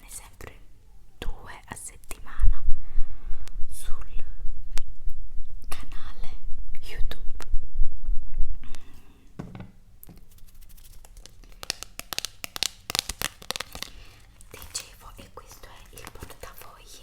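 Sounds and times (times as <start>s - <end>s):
packaging crinkling: 10.3s - 17.0s.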